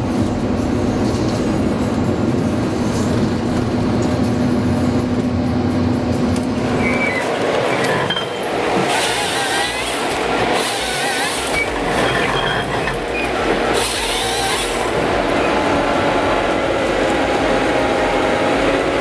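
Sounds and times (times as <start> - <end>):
heavy machine working: 0.0 - 19.0
bursts of hiss: 0.5 - 19.0
short high squeaks: 6.6 - 15.8.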